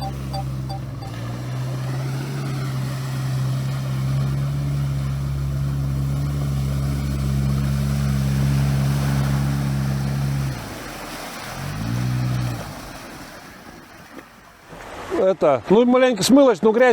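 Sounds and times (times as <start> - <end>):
faint regular beeping: 0.0 - 1.2
vehicle engine running: 0.0 - 13.4
water splashing around vehicle: 0.0 - 16.9.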